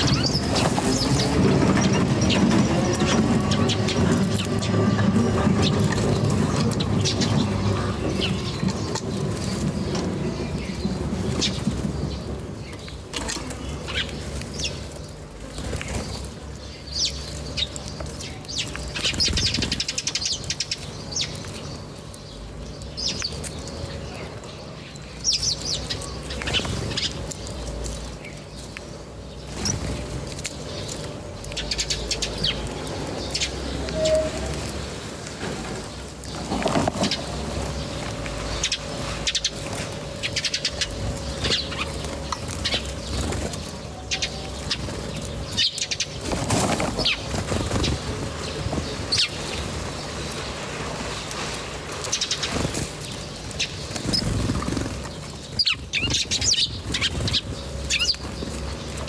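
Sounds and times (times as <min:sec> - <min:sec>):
steady low rumble: 0:00.0 - 0:14.3
small birds chirping: 0:00.0 - 0:59.0.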